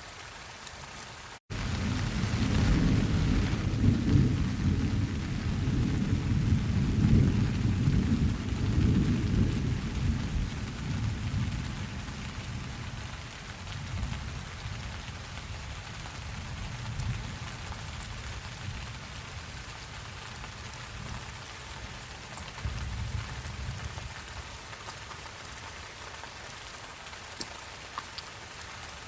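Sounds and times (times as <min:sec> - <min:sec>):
steady rain: 0:00.0 - 0:29.0
thunder rolling: 0:01.5 - 0:12.9.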